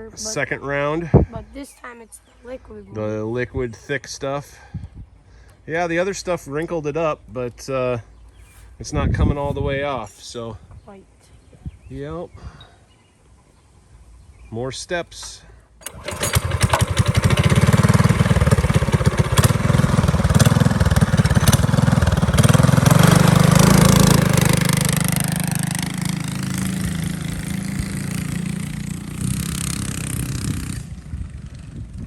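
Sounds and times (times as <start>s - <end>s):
small engine running: 15.8s - 32.0s.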